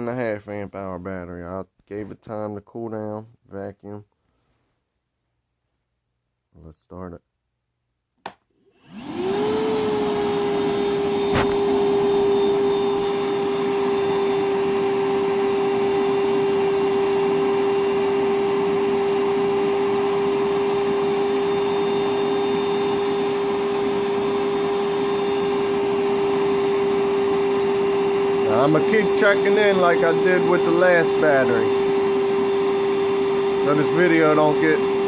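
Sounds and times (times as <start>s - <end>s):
wet dry vacuum running: 8.7s - 35.0s.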